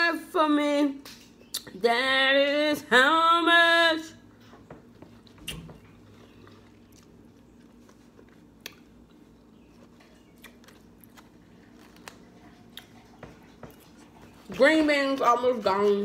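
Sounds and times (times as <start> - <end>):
chewing soft food: 4.9 - 16.0.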